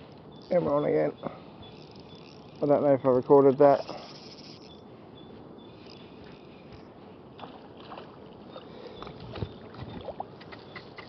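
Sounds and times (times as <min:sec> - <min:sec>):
water lapping and splashing: 0:07.3 - 0:11.0.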